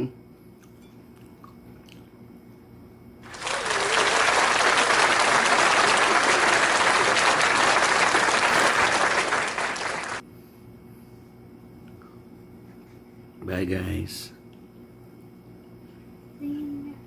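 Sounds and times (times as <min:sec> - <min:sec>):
applause: 0:03.2 - 0:10.2.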